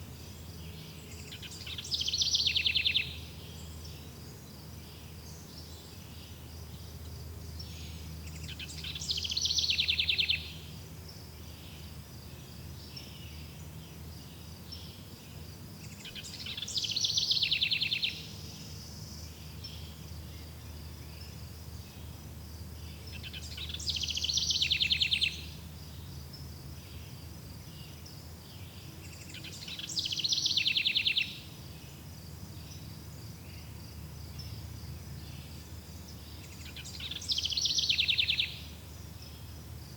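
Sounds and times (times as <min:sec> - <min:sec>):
songbird singing with trill: 0:00.0 - 0:39.9.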